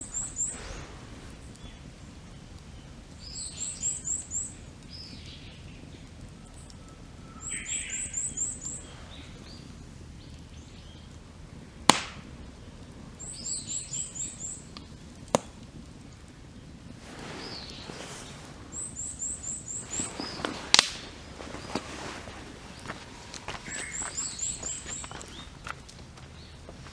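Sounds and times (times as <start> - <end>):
other birds calling: 0.0 - 11.2, 17.1 - 26.9
campfire popping: 0.0 - 26.9
steady low hiss: 0.0 - 26.9.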